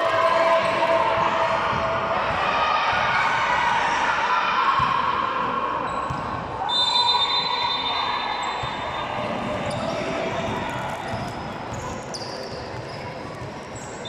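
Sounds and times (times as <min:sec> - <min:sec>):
short high whistle: 0:06.6 - 0:08.7.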